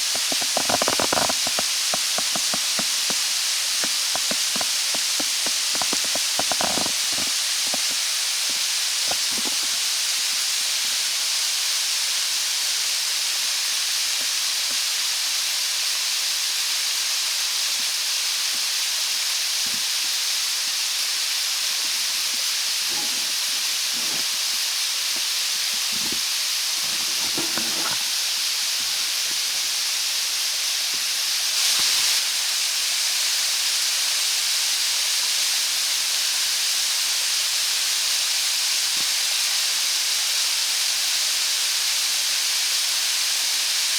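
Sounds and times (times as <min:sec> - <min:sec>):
rushing water: 0:00.0 - 0:13.2.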